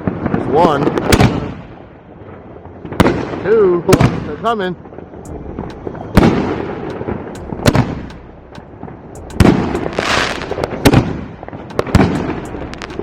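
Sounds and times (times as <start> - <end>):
fireworks bangs: 0.0 - 13.0
hissing crackle: 4.2 - 13.0.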